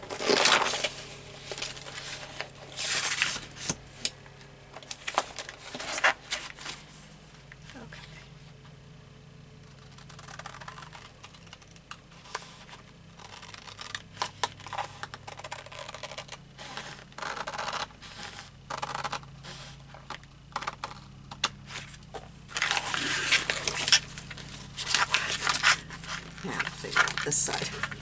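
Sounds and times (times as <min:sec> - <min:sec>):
paper rustling: 0:00.0 - 0:04.2, 0:04.8 - 0:07.1, 0:21.6 - 0:28.0
scissors snipping paper: 0:22.5 - 0:28.0.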